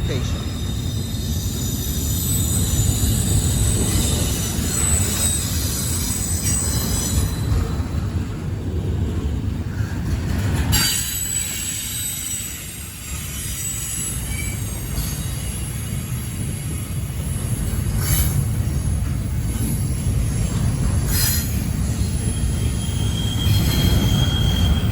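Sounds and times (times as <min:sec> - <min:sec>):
train wheels screeching: 0:00.0 - 0:08.3, 0:09.7 - 0:24.9
train rumble: 0:00.0 - 0:24.9.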